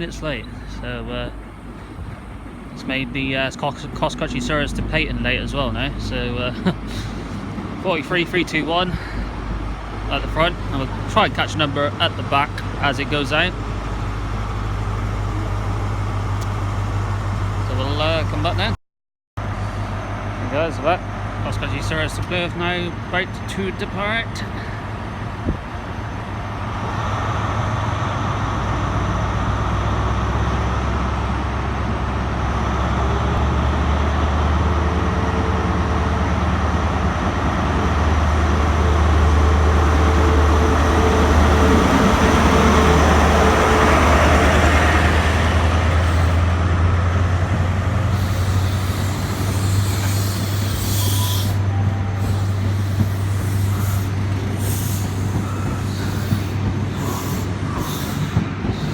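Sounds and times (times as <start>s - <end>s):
train diesel engines working hard: 0.0s - 18.8s, 19.4s - 58.9s
air hissing: 39.2s - 46.6s, 48.0s - 58.9s.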